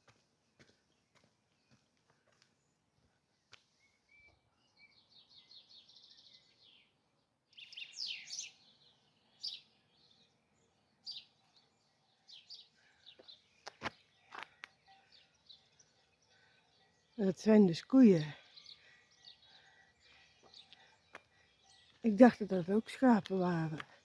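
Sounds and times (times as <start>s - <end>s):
songbirds singing: 0.0s - 24.0s.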